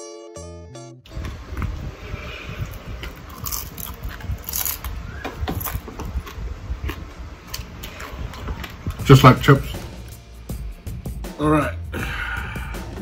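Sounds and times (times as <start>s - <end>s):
chewing crisp fried fish fin: 2.4s - 9.0s.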